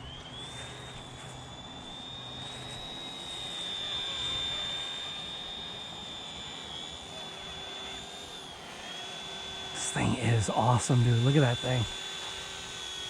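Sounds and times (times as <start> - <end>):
rc helicopter motor whining: 0.0 - 13.0.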